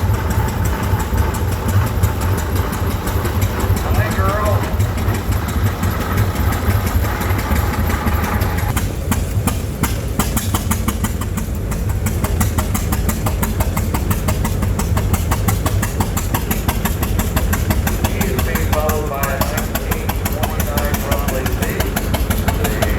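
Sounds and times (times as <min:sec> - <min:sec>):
antique engine running: 0:00.0 - 0:22.9
rapid exhaust beats: 0:00.0 - 0:22.9.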